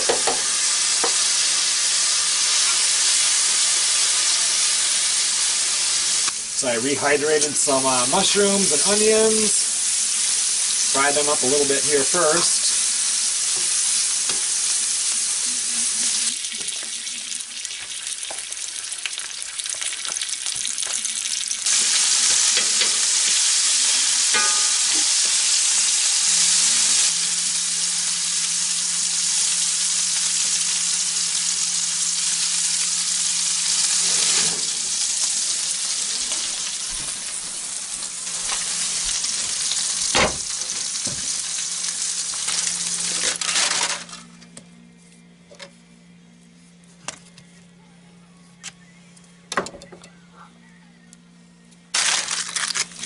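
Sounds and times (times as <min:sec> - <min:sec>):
mushrooms and onions sizzling: 0:00.0 - 0:44.2, 0:52.0 - 0:53.0.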